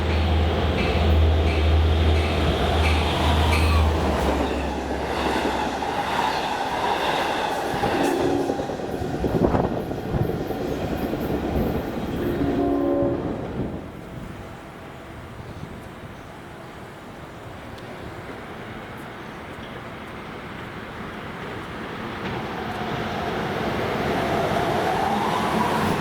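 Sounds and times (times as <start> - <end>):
train passing with low rumble: 0.0 - 26.0
train horn blasts: 12.3 - 13.8.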